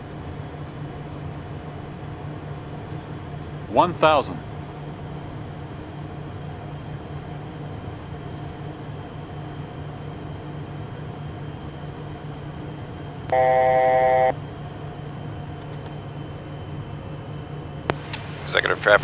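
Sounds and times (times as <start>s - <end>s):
jet cockpit noise: 0.7s - 19.0s
loud electronic tone: 13.3s - 14.3s.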